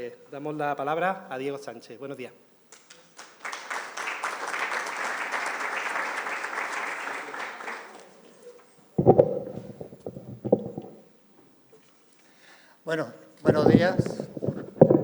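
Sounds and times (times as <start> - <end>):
audience applauding: 2.9 - 8.3
deep thumps and knocks: 9.0 - 11.0, 13.5 - 15.0.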